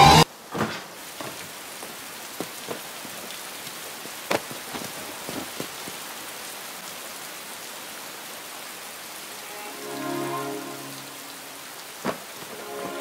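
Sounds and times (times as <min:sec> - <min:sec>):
sharp rain taps: 0:00.2 - 0:08.0, 0:11.5 - 0:13.0
steady rain hiss: 0:00.2 - 0:13.0.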